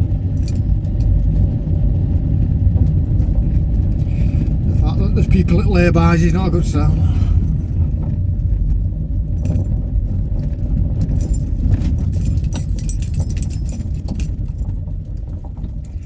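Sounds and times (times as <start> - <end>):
van road and engine rumble: 0.0 - 16.0
small rattles: 10.4 - 16.0
light metallic jingling: 11.0 - 14.7.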